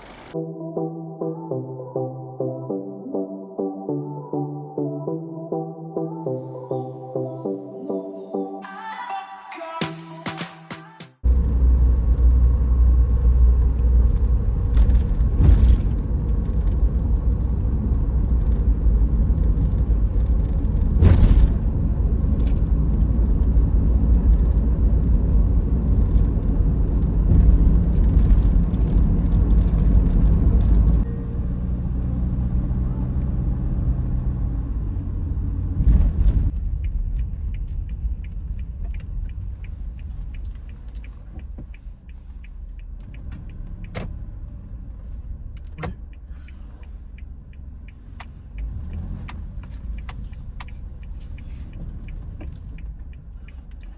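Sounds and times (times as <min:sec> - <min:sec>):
van road and engine rumble: 0:00.0 - 0:00.4, 0:11.2 - 0:53.9
faint regular ticking: 0:36.7 - 0:44.0, 0:46.0 - 0:53.9.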